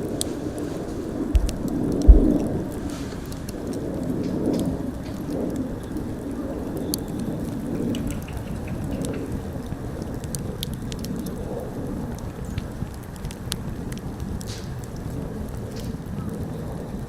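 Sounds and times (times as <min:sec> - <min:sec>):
steady rushing noise: 0:00.0 - 0:04.2
bonfire crackling: 0:00.0 - 0:17.0
heavy thump: 0:01.4 - 0:02.8.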